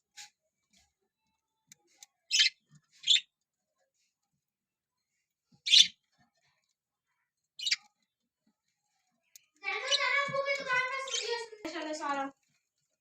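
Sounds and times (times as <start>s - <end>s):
budgerigars chirping: 2.3s - 3.2s, 5.7s - 6.0s, 7.6s - 7.8s.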